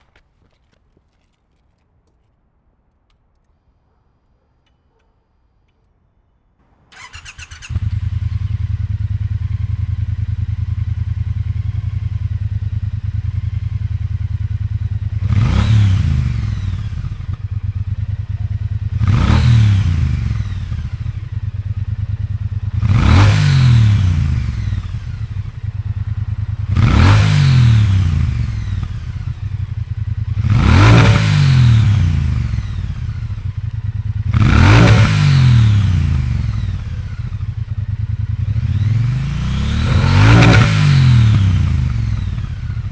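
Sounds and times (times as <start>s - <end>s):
motorcycle engine cranking: 6.9s - 11.3s
motorcycle engine idling: 6.9s - 42.9s
motorcycle engine revving: 6.9s - 42.9s.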